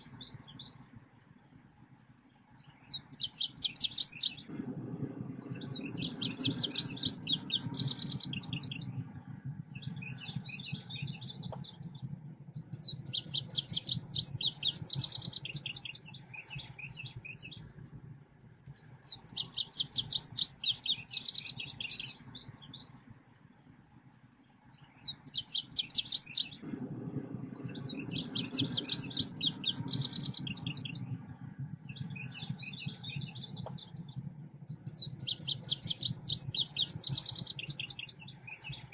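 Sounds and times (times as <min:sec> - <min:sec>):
low hum: 0:00.0 - 0:38.9.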